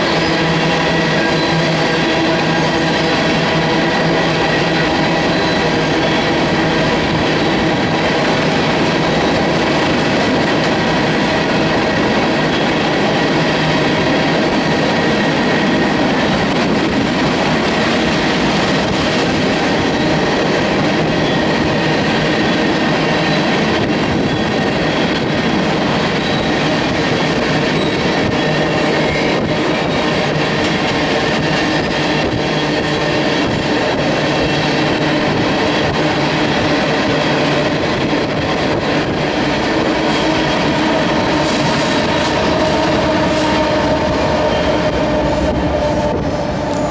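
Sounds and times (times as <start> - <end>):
high steady squeal: 0.0 - 10.8, 34.1 - 46.9
train wheels rumbling on rail: 0.0 - 46.9.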